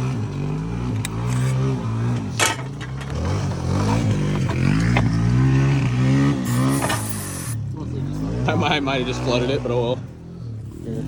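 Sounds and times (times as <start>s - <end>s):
lawnmower engine revving: 0.0s - 9.9s
sharp knocks and clatter: 2.1s - 5.4s.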